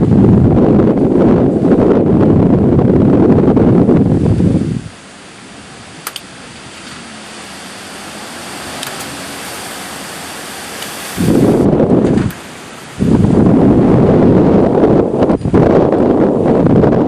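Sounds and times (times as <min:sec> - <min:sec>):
wind gusting against microphone: 0:00.0 - 0:17.0
steady rushing hiss: 0:04.0 - 0:15.5.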